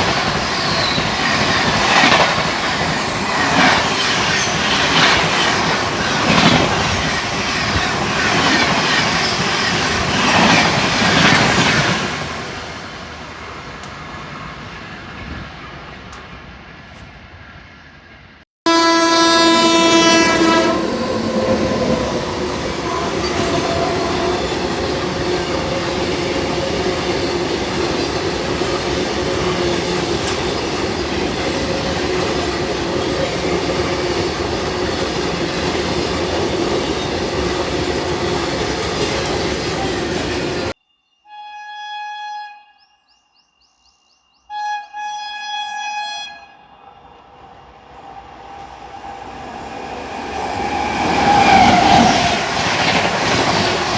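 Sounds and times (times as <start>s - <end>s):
train rumble and wheel clatter: 0.0s - 18.4s, 19.6s - 40.8s, 46.9s - 53.9s
locomotive horn: 18.6s - 25.2s, 41.3s - 42.8s, 44.5s - 47.0s.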